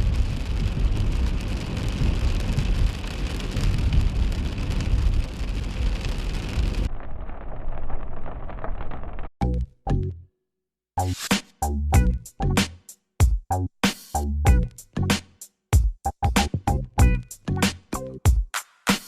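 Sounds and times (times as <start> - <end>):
rain hissing on car: 0.0 - 8.9.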